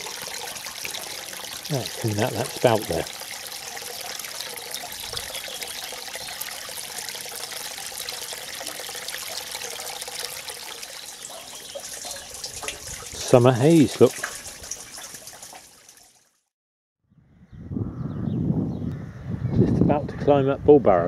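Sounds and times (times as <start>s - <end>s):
spring water trickling and splashing: 0.0s - 16.5s.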